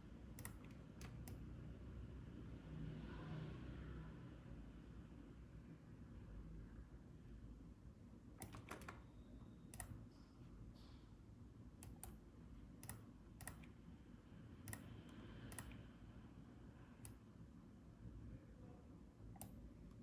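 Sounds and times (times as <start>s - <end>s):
low room hum: 0.0s - 20.0s
computer clicks: 0.4s - 1.4s, 8.4s - 9.0s, 9.7s - 10.0s, 11.8s - 12.2s, 12.8s - 13.8s, 14.7s - 14.9s, 15.5s - 15.8s.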